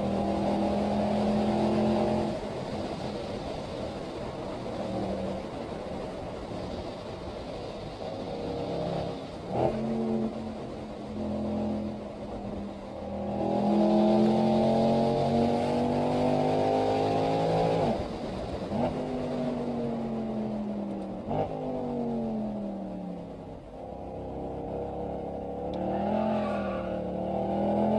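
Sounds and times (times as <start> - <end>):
car engine accelerating from inside: 0.0 - 2.8, 13.1 - 23.3, 23.9 - 27.9.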